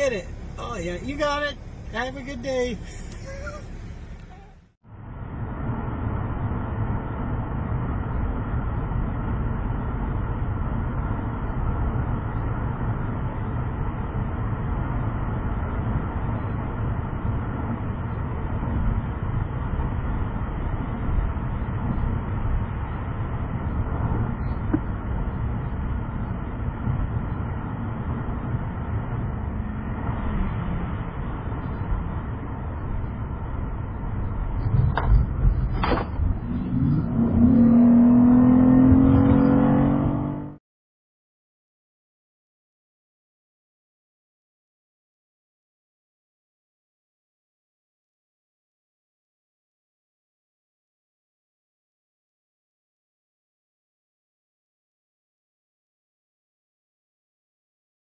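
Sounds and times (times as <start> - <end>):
vehicle road and engine rumble: 0.0 - 40.6.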